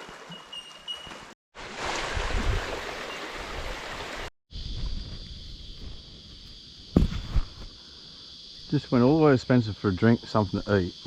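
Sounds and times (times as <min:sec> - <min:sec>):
floodwater rushing: 0:00.0 - 0:04.3
high insect chorus: 0:04.5 - 0:11.0.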